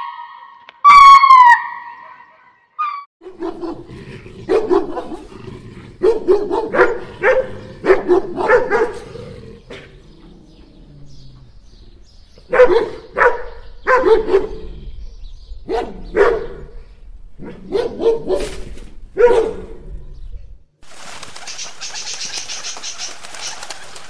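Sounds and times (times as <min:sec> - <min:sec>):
dog barking: 0:03.2 - 0:03.9, 0:04.5 - 0:05.3, 0:06.0 - 0:09.0, 0:12.5 - 0:14.6, 0:15.6 - 0:16.7, 0:17.4 - 0:18.6, 0:19.2 - 0:19.8.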